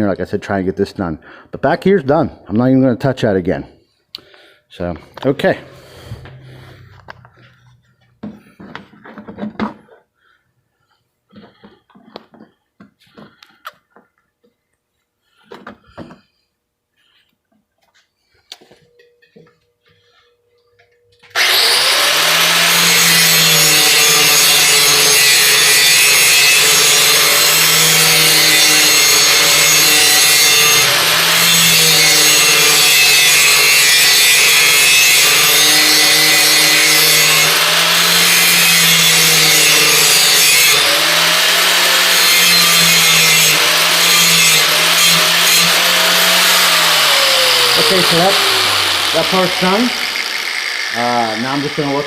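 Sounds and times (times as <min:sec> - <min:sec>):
electric grinder grinding steel: 0:21.3 - 0:52.0.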